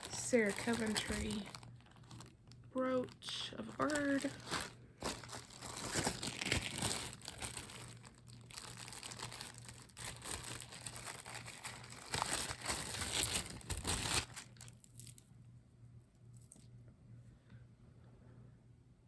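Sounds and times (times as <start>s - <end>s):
plastic bags crinkling: 0.0s - 15.2s.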